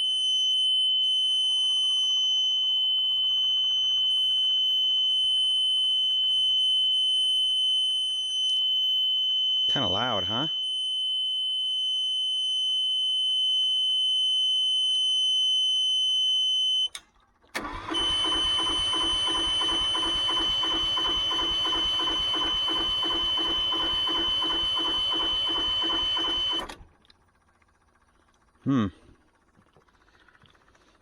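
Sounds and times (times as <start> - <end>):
diesel engine cranking: 17.5 - 26.9.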